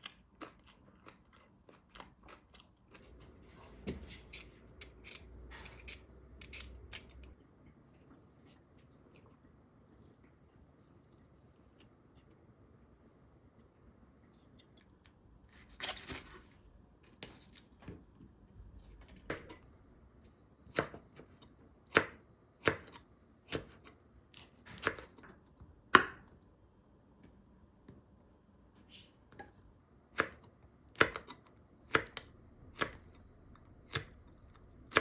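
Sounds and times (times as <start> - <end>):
knife chopping on cutting board: 21.9 - 23.9, 25.9 - 26.2, 31.0 - 33.0.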